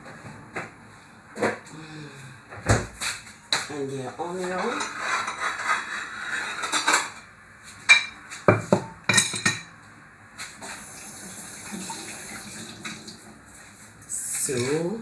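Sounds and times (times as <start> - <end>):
utensils and dishes clinking: 4.3 - 7.2, 7.9 - 9.7, 14.3 - 15.0.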